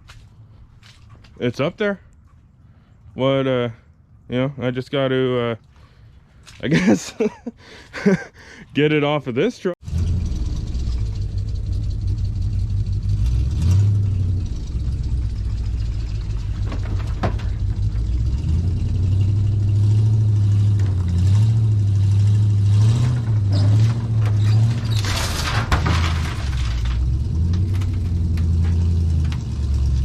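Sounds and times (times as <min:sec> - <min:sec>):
vehicle engine revving: 0:09.8 - 0:30.0.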